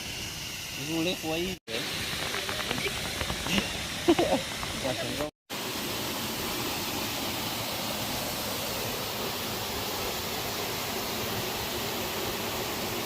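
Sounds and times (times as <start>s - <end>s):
waterfall rushing: 1.7s - 13.0s.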